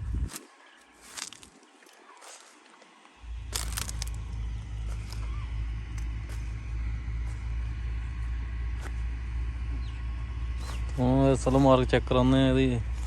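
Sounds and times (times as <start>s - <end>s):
tractor diesel engine idling: 3.2s - 13.0s.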